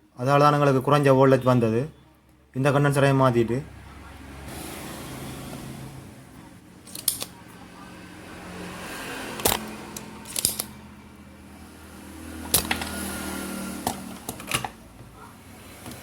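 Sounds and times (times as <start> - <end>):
tools clicking and tapping: 6.9 - 7.4, 9.4 - 10.8, 12.4 - 13.1.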